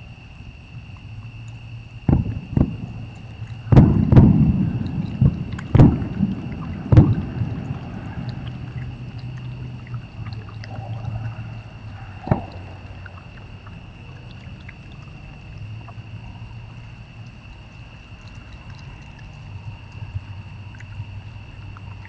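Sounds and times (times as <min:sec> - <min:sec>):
steady low hum: 0:00.0 - 0:22.0
fireworks banging: 0:02.1 - 0:08.0.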